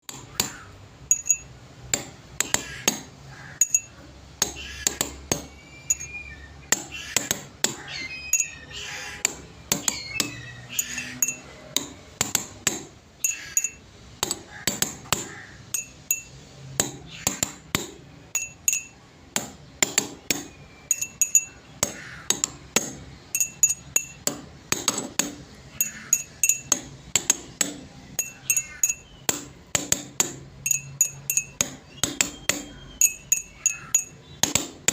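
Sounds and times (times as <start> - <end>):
sharp ringing clinks and taps: 1.0 - 1.6, 3.6 - 4.1, 5.3 - 6.2, 8.3 - 8.6, 9.7 - 12.4, 13.2 - 13.9, 15.6 - 16.5, 18.3 - 19.1, 20.0 - 21.7, 23.2 - 34.6.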